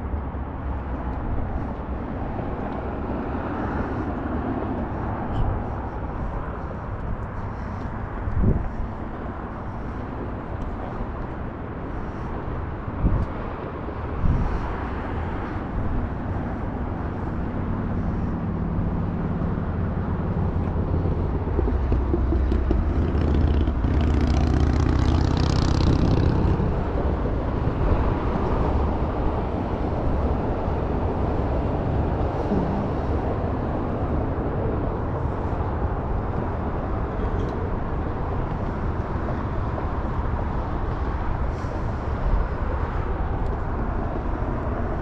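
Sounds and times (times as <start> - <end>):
vehicle road and engine rumble: 0.0 - 45.0.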